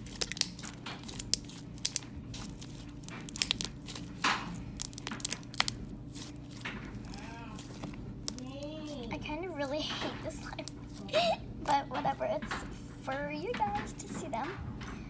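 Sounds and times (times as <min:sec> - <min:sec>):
slime squishing and popping: 0:00.0 - 0:09.2.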